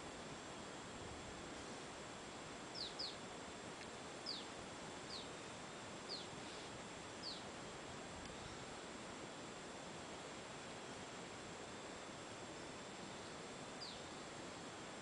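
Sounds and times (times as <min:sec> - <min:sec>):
steady hiss: 0:00.0 - 0:15.0
bird chirping: 0:02.7 - 0:03.2, 0:04.2 - 0:04.5, 0:05.1 - 0:05.3, 0:06.1 - 0:06.3, 0:07.2 - 0:07.5, 0:13.8 - 0:14.1.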